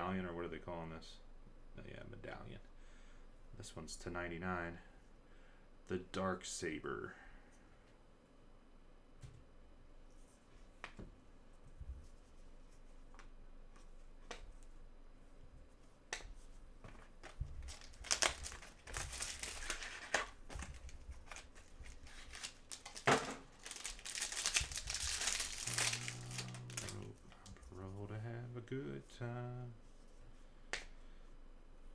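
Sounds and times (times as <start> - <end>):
plastic packaging crinkling: 17.0 - 27.8.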